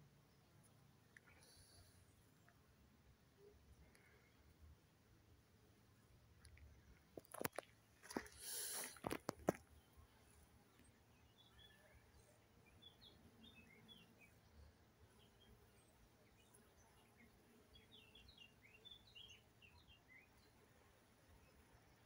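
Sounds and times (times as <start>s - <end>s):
small birds chirping: 5.9s - 22.0s.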